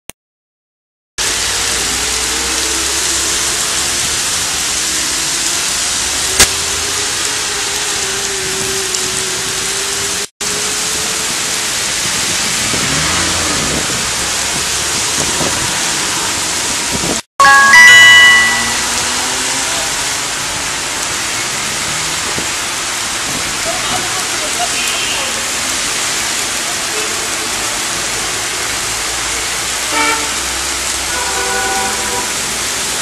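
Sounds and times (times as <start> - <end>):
faint vehicles running: 1.2 - 17.2
heavy rain on street: 1.2 - 33.0.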